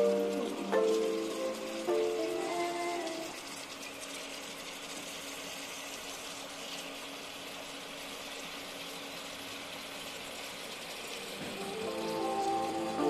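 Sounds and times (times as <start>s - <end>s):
background music: 0.0s - 2.8s, 11.4s - 13.0s
oil sizzling and crackling: 0.0s - 13.0s.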